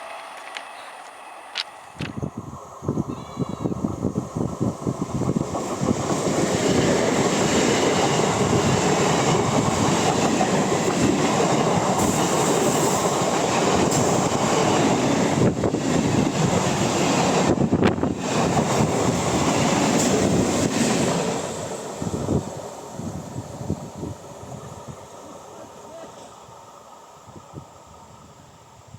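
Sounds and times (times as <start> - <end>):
train wheels clattering on rails: 4.7 - 22.8.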